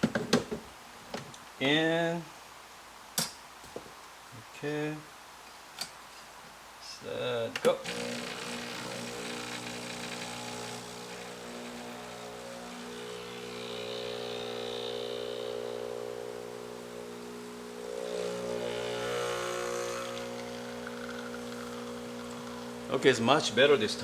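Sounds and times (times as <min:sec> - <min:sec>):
espresso machine pump humming: 0:07.8 - 0:24.0.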